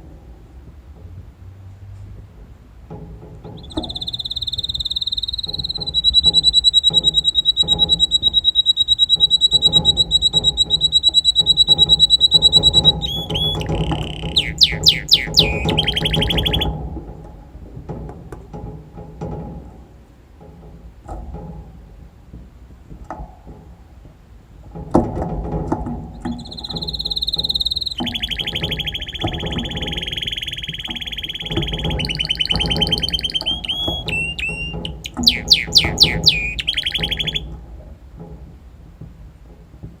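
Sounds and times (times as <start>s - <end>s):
canary singing: 3.4s - 16.8s, 26.2s - 37.6s.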